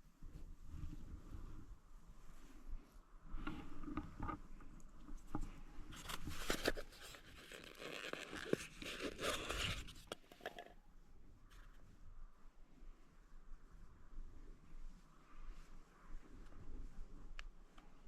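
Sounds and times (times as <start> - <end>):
rustling and scraping handling: 3.3 - 10.8.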